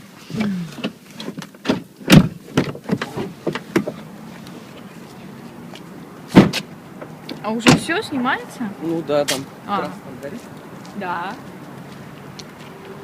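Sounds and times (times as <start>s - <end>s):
car door shutting: 0.3s - 4.0s, 6.3s - 6.7s
clicks and knocks inside a car: 0.7s - 4.1s, 5.7s - 7.9s.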